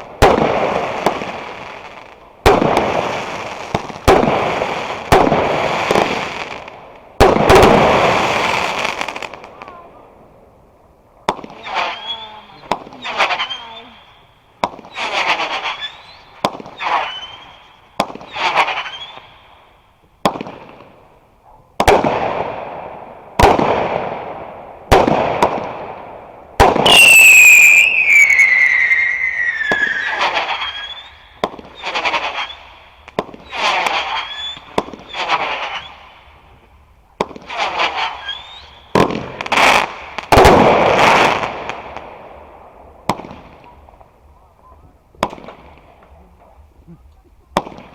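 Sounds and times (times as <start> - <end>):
fireworks bangs: 0.0 - 10.0, 14.6 - 19.4, 20.2 - 21.0, 21.8 - 47.9
falling firework whistle: 14.9 - 19.3, 26.8 - 32.8, 33.4 - 36.0, 38.0 - 39.0.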